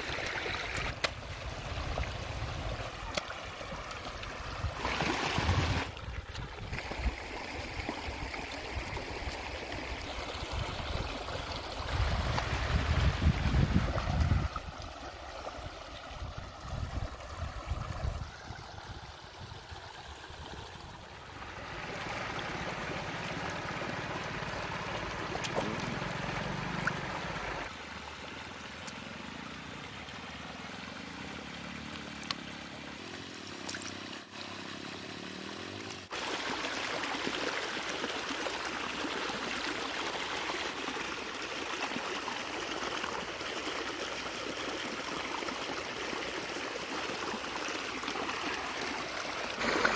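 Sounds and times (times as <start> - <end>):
river water rushing: 21.3 - 49.9.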